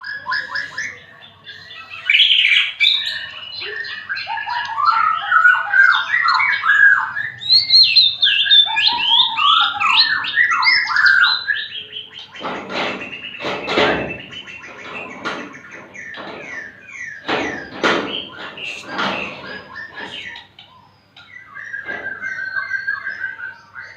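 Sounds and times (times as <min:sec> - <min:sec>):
bird singing whistled phrases: 0:00.0 - 0:23.9
knocks and rattles: 0:12.3 - 0:20.4.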